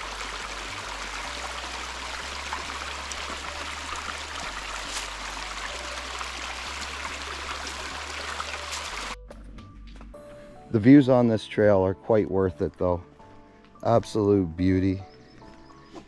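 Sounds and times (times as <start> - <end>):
creek water rushing: 0.0 - 9.2.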